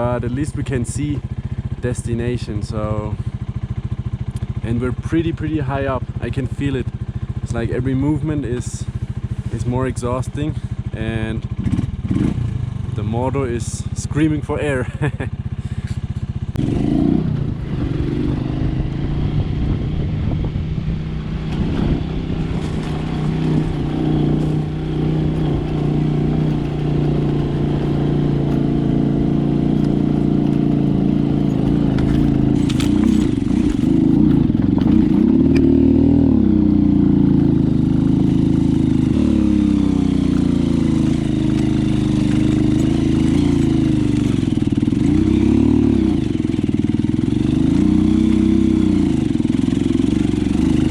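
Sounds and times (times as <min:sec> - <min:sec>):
small motorcycle engine running: 0:00.0 - 0:50.9
clatter: 0:21.5 - 0:35.8, 0:37.2 - 0:48.4.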